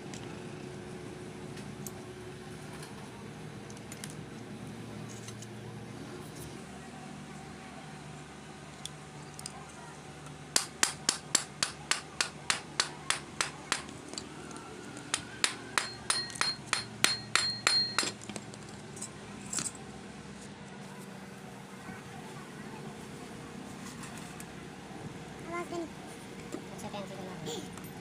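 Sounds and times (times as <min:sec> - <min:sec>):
hammer striking metal: 0:10.6 - 0:13.9, 0:15.1 - 0:18.2.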